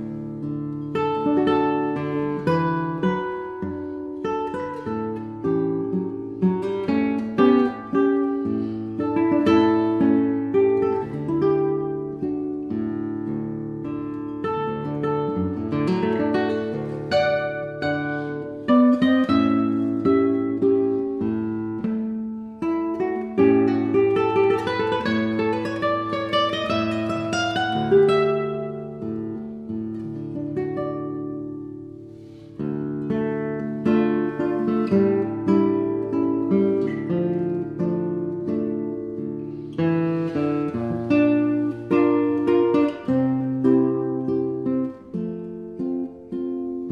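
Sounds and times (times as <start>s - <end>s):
acoustic guitar chords: 0.0s - 46.9s.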